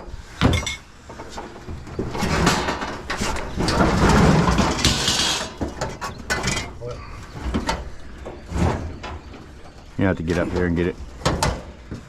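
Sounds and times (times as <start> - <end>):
scrap item scraping and rattling: 2.0 - 6.6.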